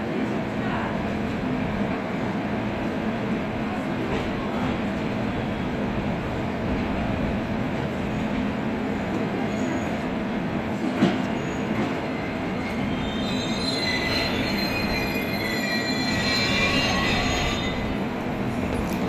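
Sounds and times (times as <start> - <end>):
train rumbling: 0.2 - 19.0
train wheels squealing: 9.4 - 10.1, 11.0 - 18.0.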